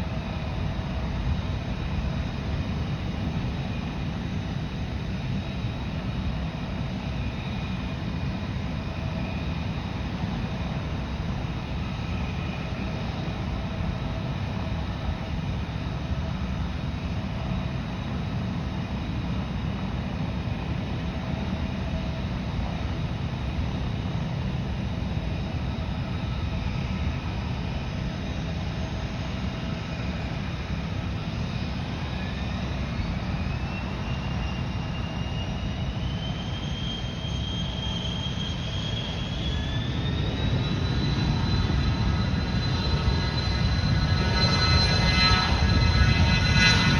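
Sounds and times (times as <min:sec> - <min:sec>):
aircraft turbine engines rumbling: 0:00.0 - 0:46.9
engine whine rising in pitch: 0:35.6 - 0:46.9.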